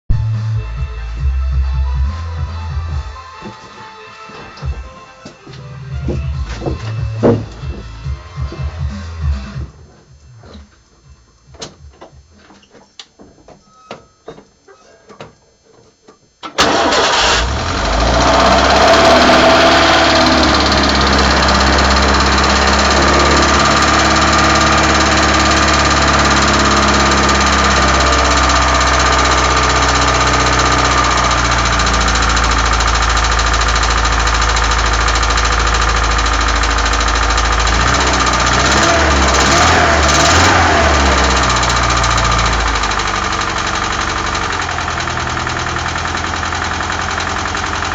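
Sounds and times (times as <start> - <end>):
car engine starting and idling: 5.7 - 9.6, 16.4 - 47.9.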